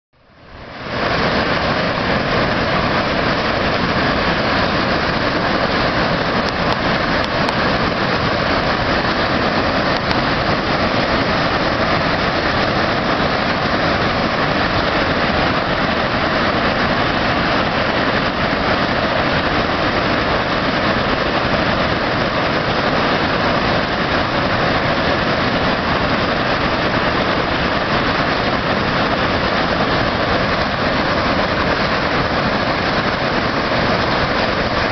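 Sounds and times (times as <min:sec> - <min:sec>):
waterfall rushing: 0:00.3 - 0:34.9.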